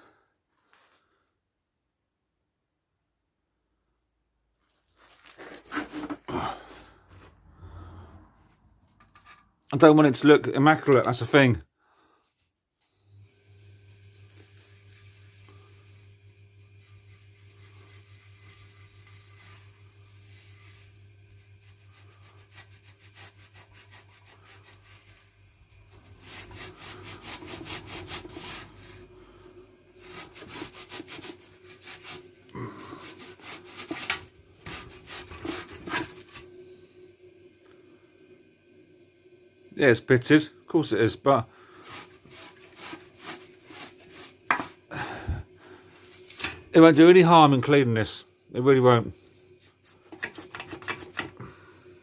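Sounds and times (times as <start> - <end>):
steady low hum: 12.9 - 50.2
hand scrubbing rusty metal: 13.6 - 36.5, 41.6 - 47.0, 49.5 - 51.6.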